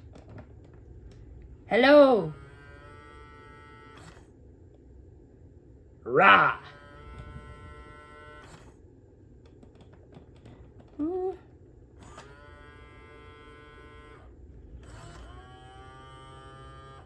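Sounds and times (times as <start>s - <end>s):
toy electric motors whirring: 2.2s - 4.4s, 6.6s - 8.8s, 12.0s - 17.0s
toy growl rising in pitch: 6.1s - 7.4s.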